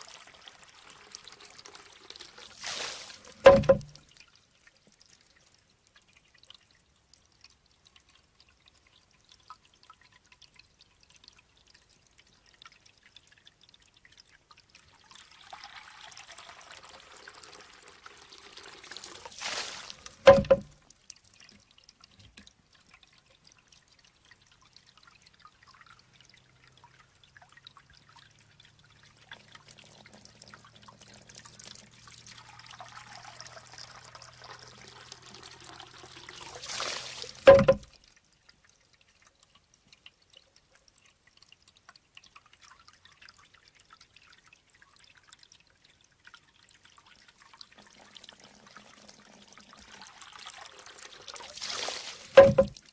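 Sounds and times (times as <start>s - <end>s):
water trickling into bamboo tube: 0.0s - 52.9s
water splash: 2.5s - 4.1s, 19.1s - 20.8s, 36.2s - 37.9s, 51.5s - 52.9s
bamboo knocking on stone: 3.4s - 4.0s, 20.3s - 20.7s, 37.5s - 37.9s, 52.4s - 52.8s.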